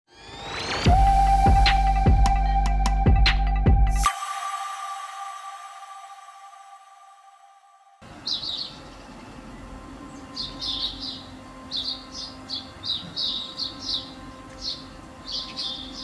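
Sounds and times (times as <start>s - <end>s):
background music: 0.2s - 16.0s
small bird chirping: 8.1s - 16.0s.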